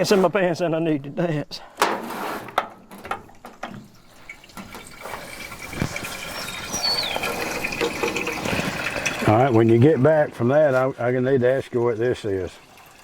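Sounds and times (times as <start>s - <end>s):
water pouring into a filler: 3.4s - 13.0s.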